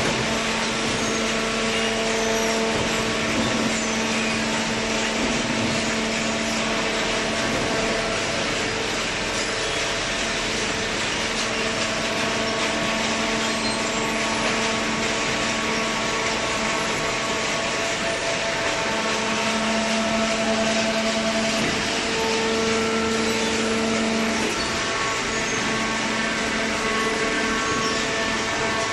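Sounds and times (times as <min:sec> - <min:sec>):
baler machine drone: 0:00.0 - 0:28.9
humming tones: 0:11.6 - 0:28.9.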